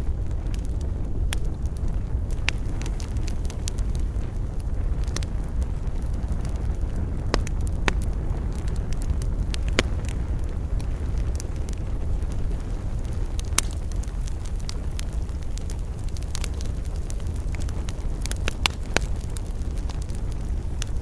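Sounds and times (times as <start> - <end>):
campfire crackling and popping: 0.0 - 21.0
low fire rumble: 0.0 - 21.0.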